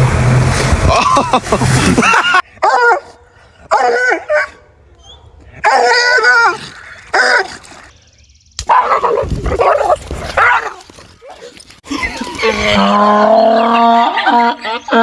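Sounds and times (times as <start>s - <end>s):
dog barking and whining: 2.6s - 7.8s, 8.7s - 10.8s.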